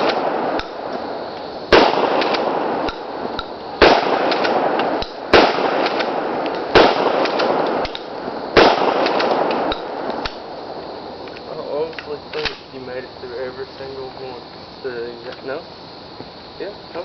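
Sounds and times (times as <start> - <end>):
shotgun blasts: 0.0 - 1.1, 1.7 - 10.5.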